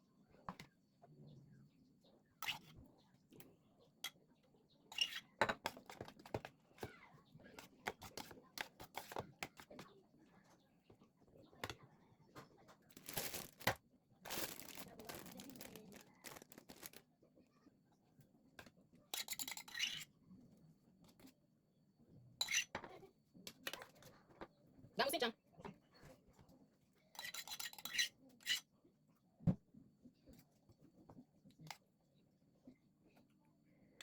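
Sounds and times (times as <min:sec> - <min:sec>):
crinkling or tearing: 0:13.0 - 0:17.0.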